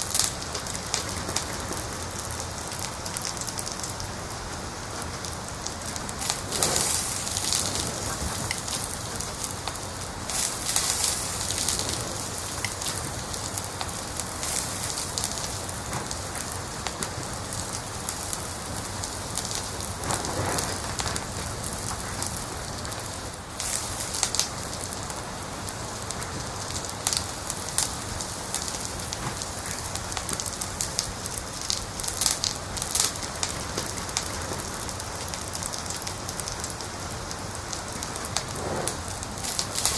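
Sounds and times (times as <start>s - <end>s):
fire hiss: 0.0s - 39.9s
wood fire crackling and popping: 0.0s - 39.9s.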